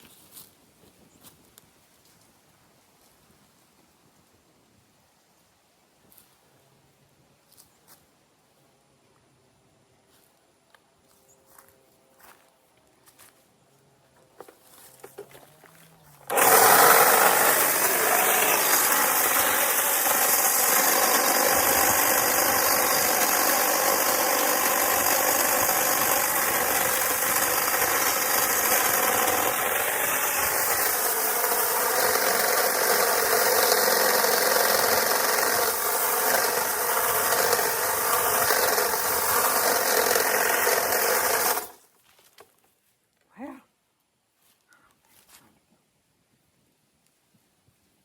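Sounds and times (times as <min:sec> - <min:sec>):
power tool motor buzzing: 0:16.2 - 0:41.8.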